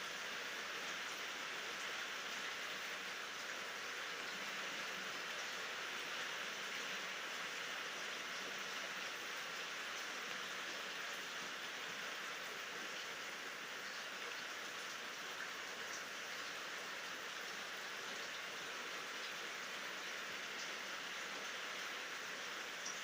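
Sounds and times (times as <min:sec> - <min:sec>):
steady rainfall: 0:00.0 - 0:23.0.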